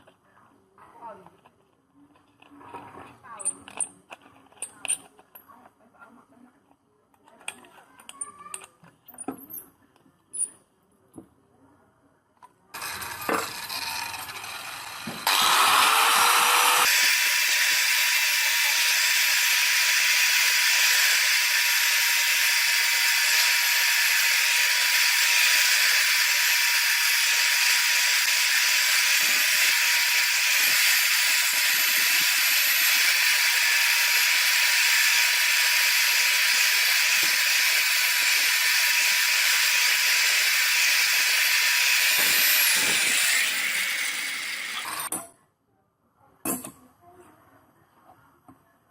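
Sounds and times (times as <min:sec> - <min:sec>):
electric power tool spinning: 0:12.8 - 0:45.1.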